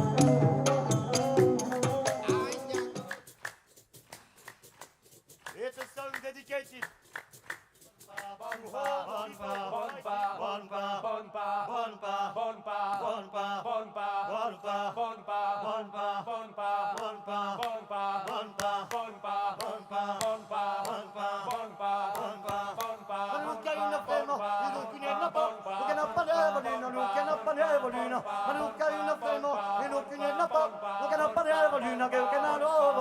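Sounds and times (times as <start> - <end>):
voices chanting a melody: 8.1 - 33.0
sharp percussive clicks: 17.0 - 22.9.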